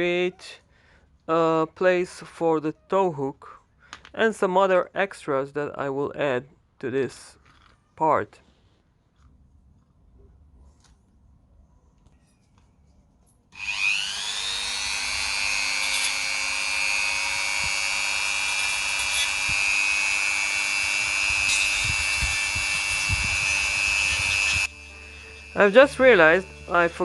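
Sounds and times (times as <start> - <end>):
rotary power tool whining: 13.6 - 27.0.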